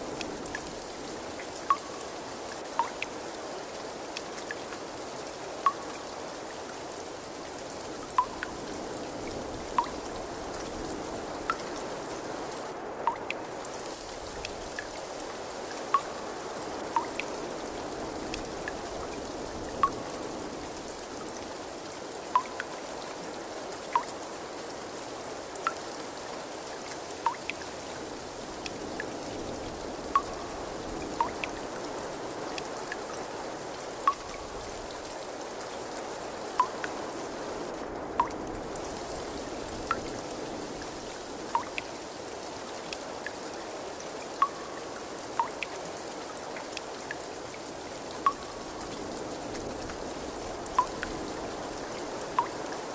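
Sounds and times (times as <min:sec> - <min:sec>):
trickle of running water: 0:00.0 - 0:52.9
water drops plinking: 0:01.7 - 0:02.0, 0:02.8 - 0:03.1, 0:05.7 - 0:05.9, 0:08.2 - 0:08.5, 0:09.8 - 0:10.0, 0:13.1 - 0:13.4, 0:15.9 - 0:16.1, 0:16.9 - 0:17.3, 0:22.4 - 0:22.7, 0:24.0 - 0:24.2, 0:27.2 - 0:27.6, 0:30.2 - 0:30.5, 0:31.1 - 0:31.5, 0:34.1 - 0:34.5, 0:36.6 - 0:36.9, 0:41.6 - 0:41.8, 0:44.4 - 0:44.8, 0:45.4 - 0:45.8, 0:48.3 - 0:48.6, 0:50.8 - 0:51.1, 0:52.4 - 0:52.6.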